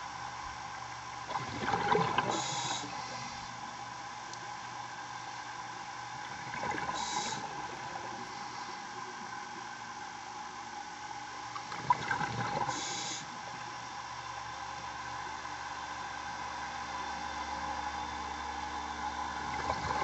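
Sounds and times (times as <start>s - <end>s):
steady machinery hum: 0.0s - 20.0s
scuba diver breathing underwater: 2.3s - 3.5s, 6.9s - 7.6s, 12.6s - 13.3s.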